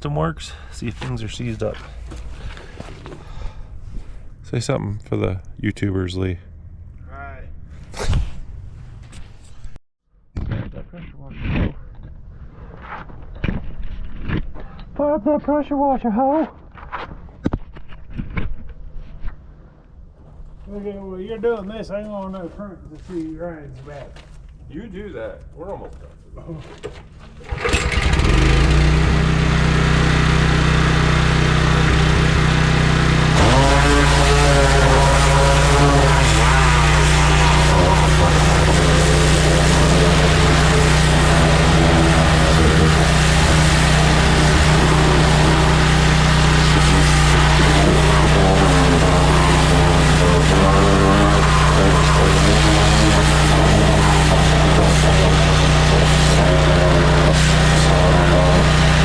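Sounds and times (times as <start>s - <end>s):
small gas engine running: 27.3s - 59.0s.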